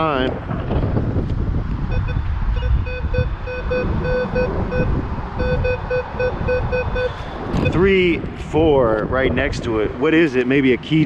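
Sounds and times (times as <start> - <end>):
wind noise on microphone: 0.0 - 11.0
metal detector short beeps: 1.9 - 7.8.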